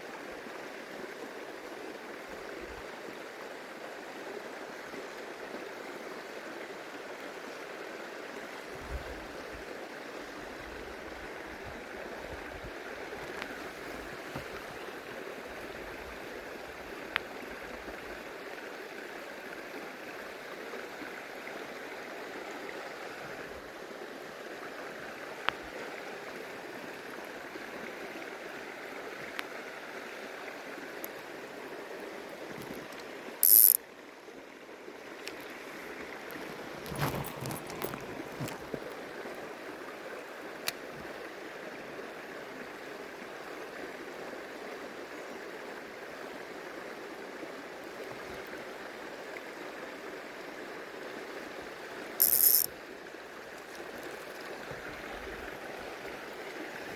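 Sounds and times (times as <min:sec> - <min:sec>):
shallow stream running: 0:00.0 - 0:56.9
small clicks: 0:32.6 - 0:33.8, 0:36.8 - 0:38.9, 0:52.2 - 0:52.7.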